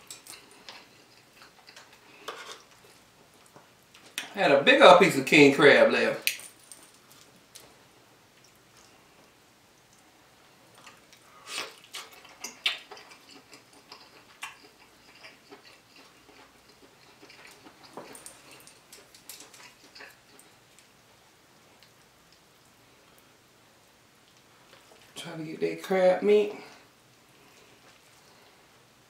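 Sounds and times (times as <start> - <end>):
close chewing with mouth smacks: 0.0 - 4.3, 10.7 - 21.0.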